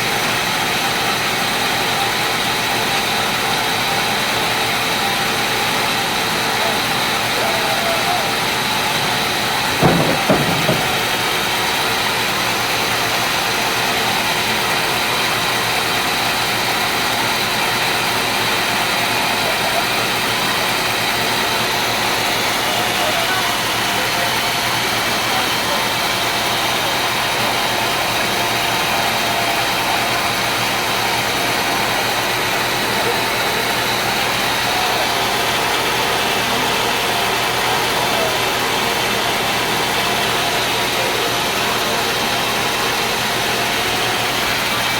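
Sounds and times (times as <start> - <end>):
sawmill machine running: 0.0 - 44.9
short knock: 9.7 - 11.2.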